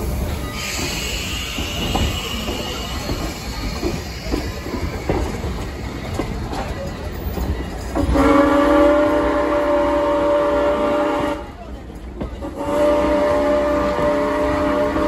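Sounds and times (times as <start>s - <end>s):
wheels clicking over rail joints: 0.0s - 8.2s
train coaches rumbling past: 0.0s - 15.0s
locomotive whistle blast: 0.5s - 3.0s, 8.0s - 11.6s, 12.4s - 15.0s.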